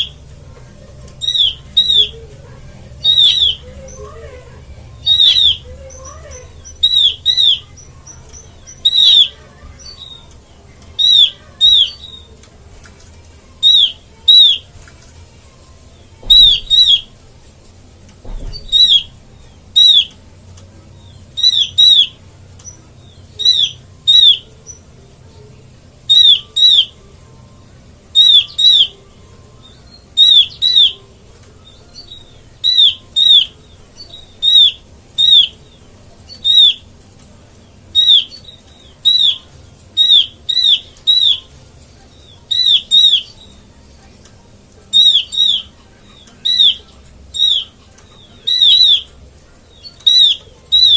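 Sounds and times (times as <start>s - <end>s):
bird calling sharp notes: 1.0s - 12.4s, 13.5s - 14.7s, 16.2s - 17.2s, 18.4s - 20.2s, 21.2s - 24.8s, 26.0s - 27.1s, 28.1s - 31.1s, 31.7s - 36.9s, 37.8s - 41.6s, 42.2s - 43.7s, 44.8s - 49.2s, 49.8s - 50.9s.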